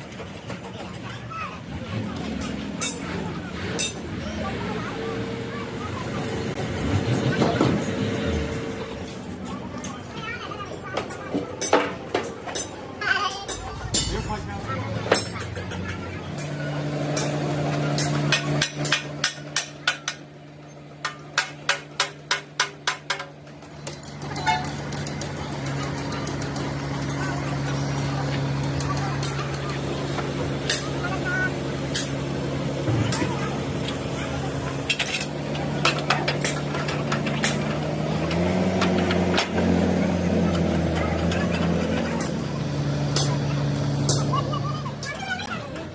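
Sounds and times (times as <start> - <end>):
vehicle engine running: 0.0 - 11.6, 13.0 - 45.9
hammer striking steel: 12.5 - 20.2
steady low hum: 13.4 - 16.2.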